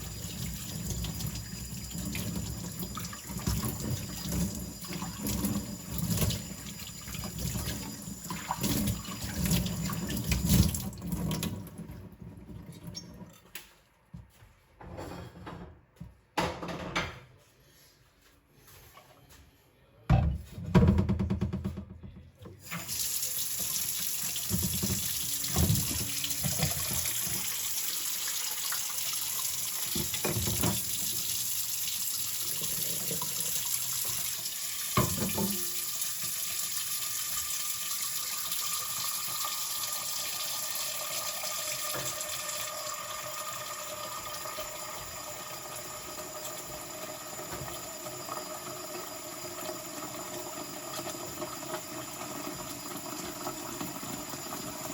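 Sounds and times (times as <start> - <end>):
kitchen tap running into sink: 0.0 - 13.3, 22.6 - 54.9
dishes knocking against sink: 16.4 - 17.2.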